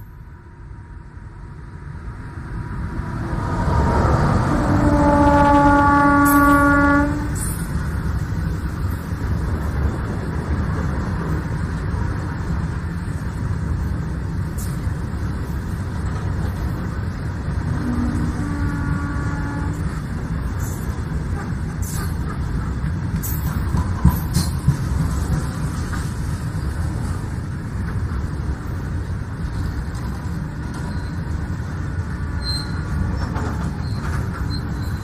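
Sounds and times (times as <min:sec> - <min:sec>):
train wheels rumbling on track: 0:00.0 - 0:35.0
train horn blasts: 0:04.2 - 0:07.6, 0:17.6 - 0:20.0.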